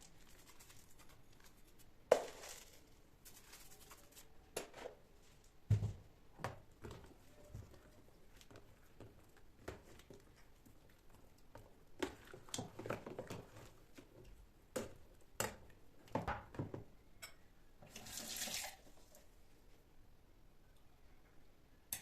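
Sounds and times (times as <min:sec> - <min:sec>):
water running from tap: 0:17.9 - 0:18.9.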